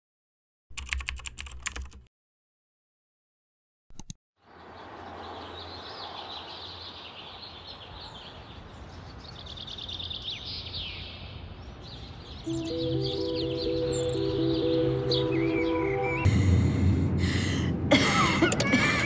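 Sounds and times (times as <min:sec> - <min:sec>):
birds chirping and trilling: 0:04.5 - 0:16.4
music: 0:12.5 - 0:16.3.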